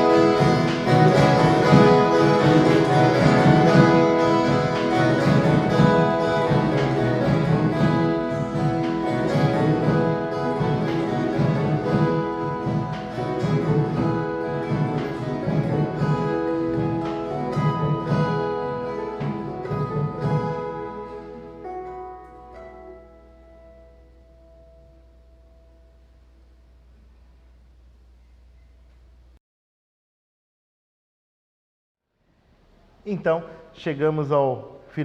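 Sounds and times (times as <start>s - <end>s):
plucked guitar ensemble: 0.0s - 26.0s.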